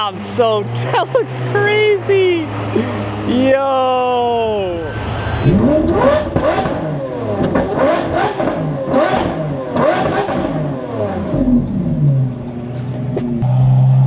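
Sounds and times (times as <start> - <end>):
car engine revving: 0.0 - 14.0
car engine idling: 11.2 - 14.0.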